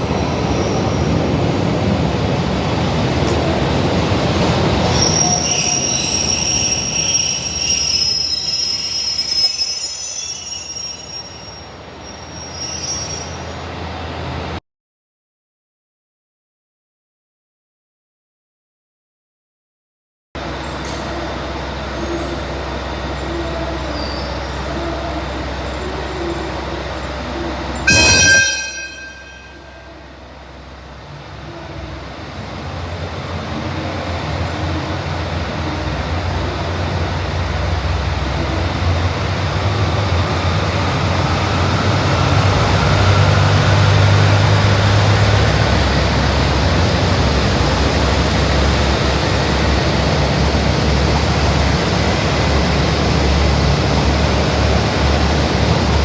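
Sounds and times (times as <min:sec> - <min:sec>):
diesel train engine drone: 0:00.0 - 0:14.6, 0:20.4 - 0:56.0
rail noise: 0:00.0 - 0:14.6, 0:20.4 - 0:56.0
train horn blast: 0:27.9 - 0:30.0.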